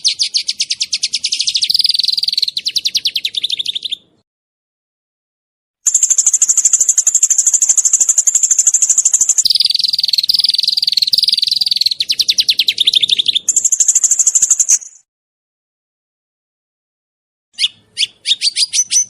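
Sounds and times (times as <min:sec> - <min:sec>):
songbird trilling: 0:00.0 - 0:04.1, 0:05.9 - 0:15.1, 0:17.6 - 0:19.0.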